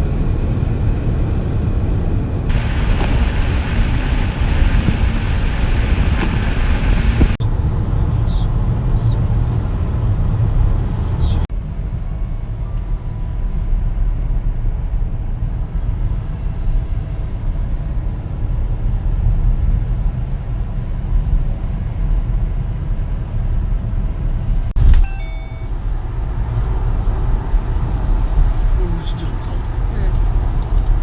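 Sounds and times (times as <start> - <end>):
vehicle road noise rumble: 0.0 - 31.0
brief high tones: 24.8 - 25.9.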